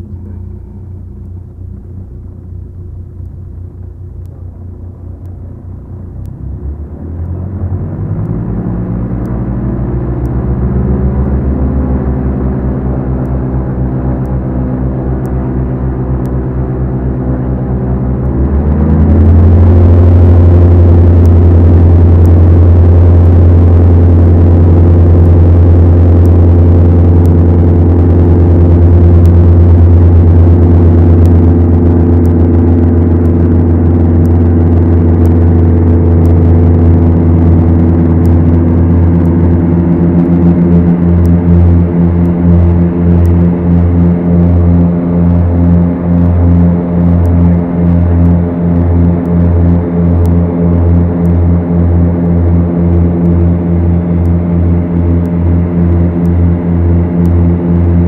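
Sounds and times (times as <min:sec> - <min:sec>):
aircraft engines droning: 0:00.0 - 0:58.0.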